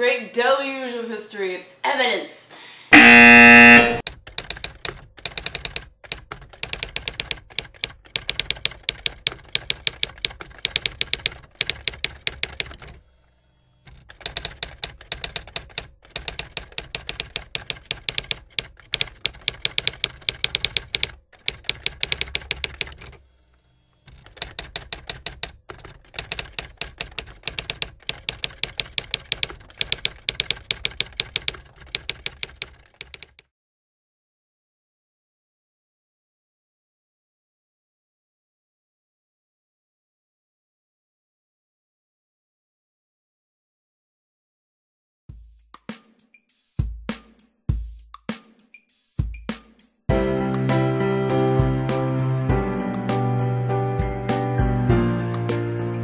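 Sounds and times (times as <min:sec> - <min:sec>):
typewriter keystroke clicks: 0:04.0 - 0:13.0, 0:13.9 - 0:23.2, 0:24.1 - 0:33.5.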